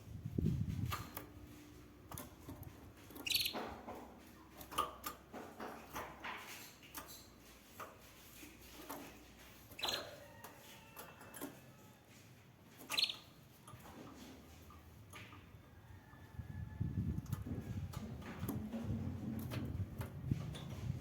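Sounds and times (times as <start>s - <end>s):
light clicks and rustles: 0.4s - 16.4s
canary chirping: 3.1s - 3.8s, 9.7s - 11.5s, 12.8s - 13.8s.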